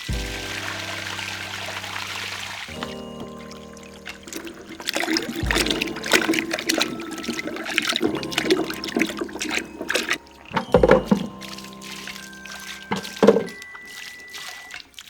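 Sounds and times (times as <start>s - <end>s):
background music: 0.0s - 15.0s
water running and splashing: 0.0s - 15.0s.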